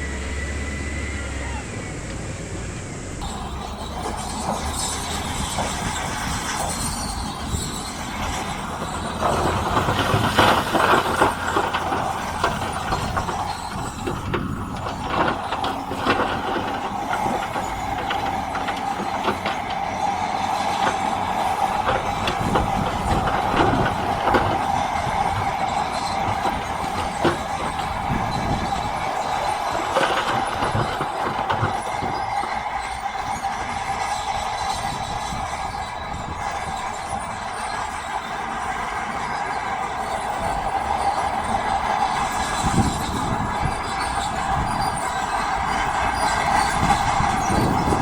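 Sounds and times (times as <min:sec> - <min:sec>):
diesel engines under load: 0:00.0 - 0:48.0
high-pitched squealing whine: 0:00.0 - 0:48.0
metallic clanks and knocks: 0:03.2 - 0:32.4.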